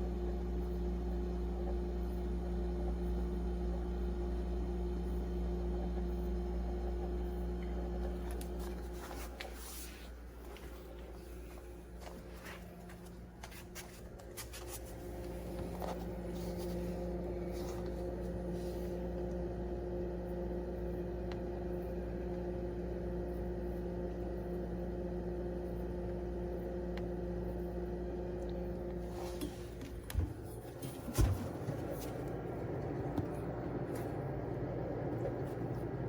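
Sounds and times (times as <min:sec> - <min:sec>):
refrigerator humming: 0:00.0 - 0:36.0.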